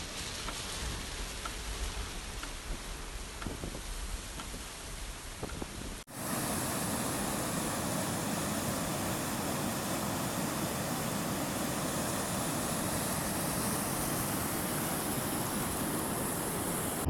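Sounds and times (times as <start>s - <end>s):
water flowing: 6.0s - 17.0s.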